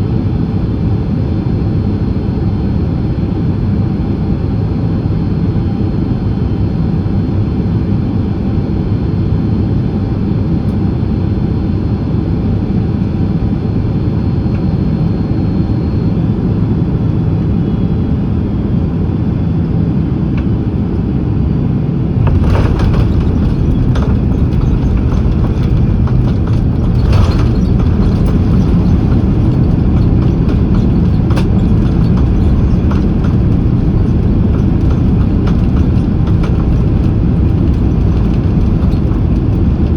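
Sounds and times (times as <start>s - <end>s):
airplane cabin rumble: 20.2s - 39.9s
jolts and knocks: 22.2s - 39.9s.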